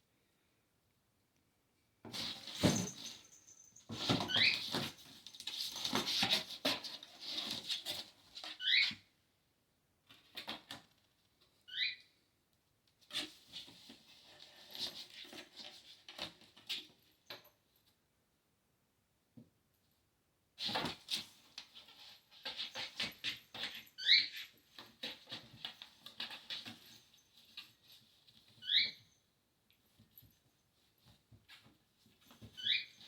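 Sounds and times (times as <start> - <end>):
kitten paws pattering and scrabbling: 2.1 - 8.6, 20.6 - 28.7.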